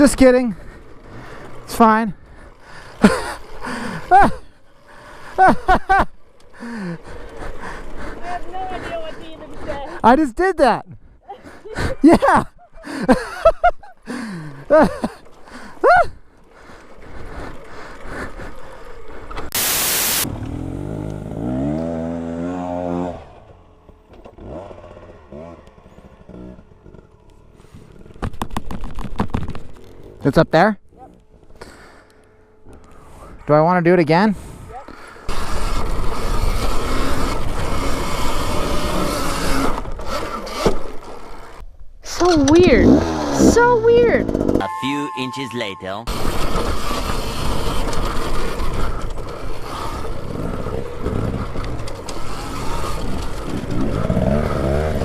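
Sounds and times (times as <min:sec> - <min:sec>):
tyre and chassis noise: 0:00.0 - 0:10.8, 0:12.4 - 0:33.1, 0:34.1 - 0:55.0
motorcycle engine revving: 0:20.0 - 0:28.3, 0:35.0 - 0:41.6, 0:42.2 - 0:44.6, 0:46.1 - 0:55.0.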